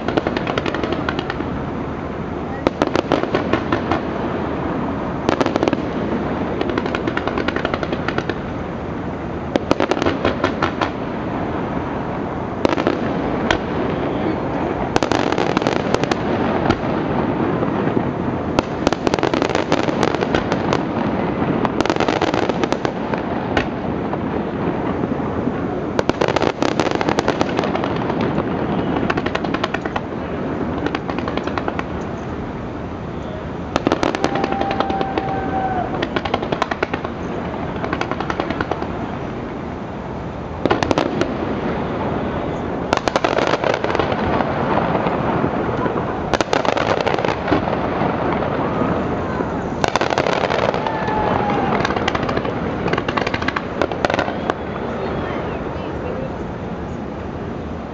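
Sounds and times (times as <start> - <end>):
rapid crackling reports: 0.0 - 21.8
fireworks bangs and crackle: 0.0 - 57.9.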